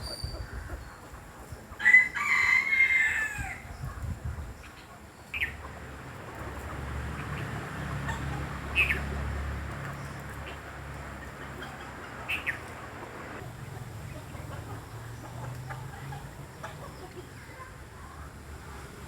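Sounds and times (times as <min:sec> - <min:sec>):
rooster crowing: 0:01.8 - 0:03.6.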